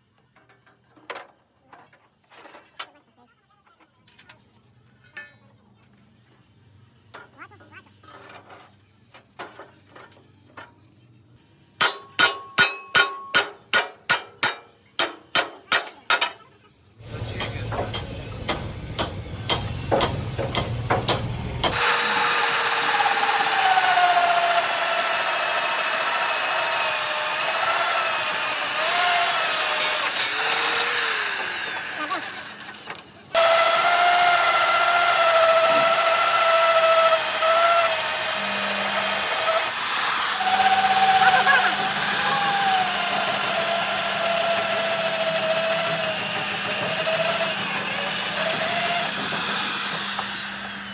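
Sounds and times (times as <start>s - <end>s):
power tool whining on metal: 17.0s - 50.9s
hammer blows on steel: 17.2s - 22.0s.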